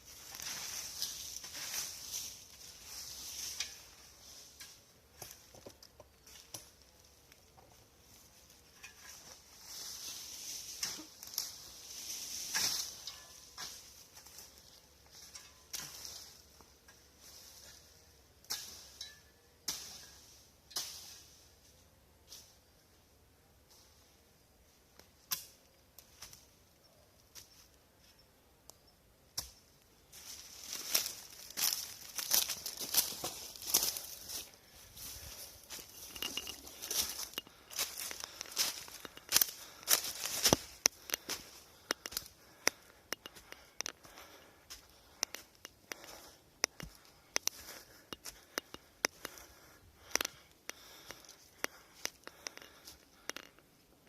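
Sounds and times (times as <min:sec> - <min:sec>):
twigs and leaves crackling: 0:00.0 - 0:22.9, 0:23.7 - 0:54.0
leaf litter rustling and crackling: 0:30.2 - 0:42.2
dry twigs snapping: 0:35.7 - 0:44.2, 0:45.1 - 0:49.4.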